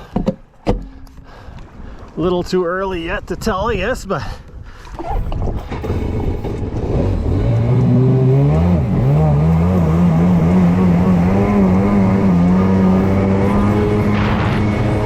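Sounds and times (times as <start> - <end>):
jet ski engine accelerating: 5.0 - 15.0.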